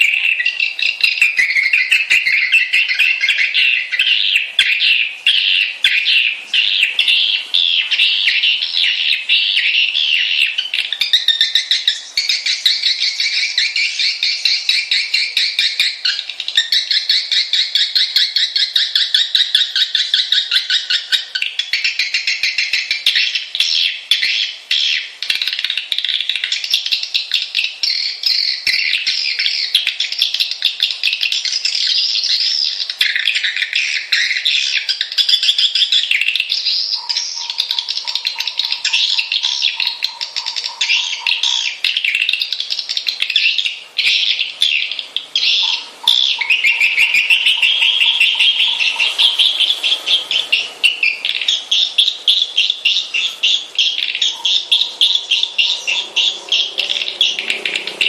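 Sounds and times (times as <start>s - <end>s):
swiftlets twittering chorus: 0.0s - 58.0s.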